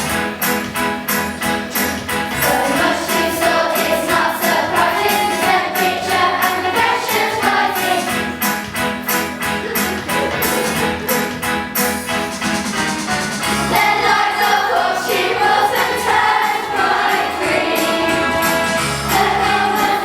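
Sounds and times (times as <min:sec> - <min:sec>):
group singing over a beat: 0:02.3 - 0:08.6, 0:13.6 - 0:20.0.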